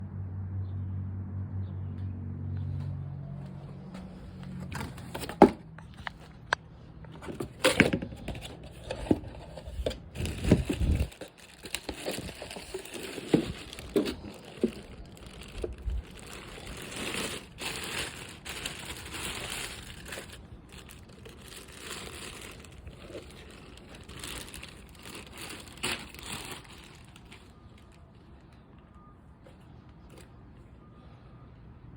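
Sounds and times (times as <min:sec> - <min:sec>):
packaging crinkling and rustling: 0:04.4 - 0:28.6.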